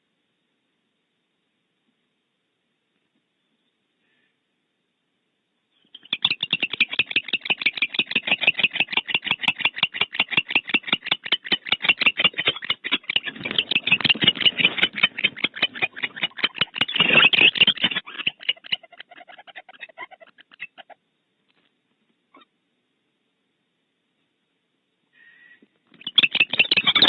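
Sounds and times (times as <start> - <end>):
owl rasping calls: 5.8 - 21.0, 25.2 - 27.0.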